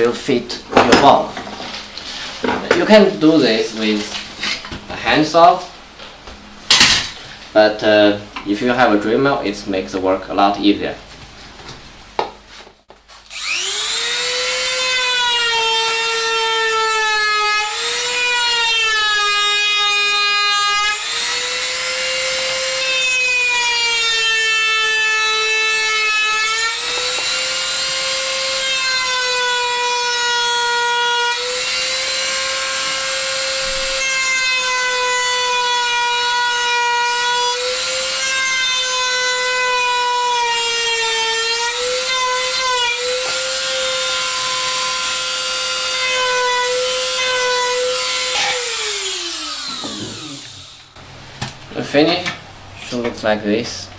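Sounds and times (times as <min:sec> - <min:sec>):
electric drill mill whining: 0:13.3 - 0:51.0.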